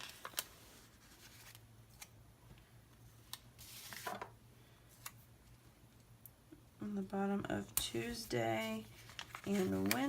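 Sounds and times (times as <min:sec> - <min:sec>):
paper rustle: 0:00.0 - 0:02.1, 0:08.6 - 0:10.0.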